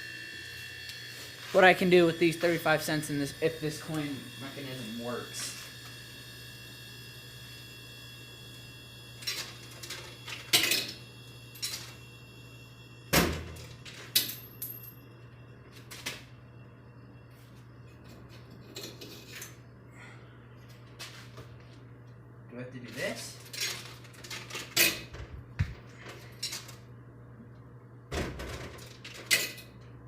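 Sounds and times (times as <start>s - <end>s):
coins clinking in vending machine: 9.2s - 12.0s, 13.6s - 15.0s, 26.2s - 26.8s, 28.8s - 29.8s.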